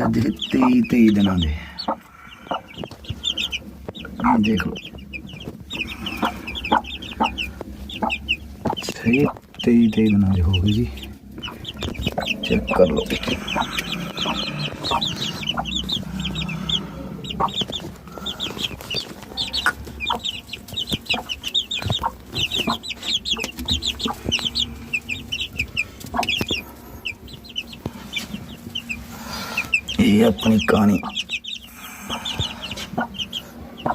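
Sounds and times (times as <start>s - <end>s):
chicks peeping: 0.0s - 33.9s.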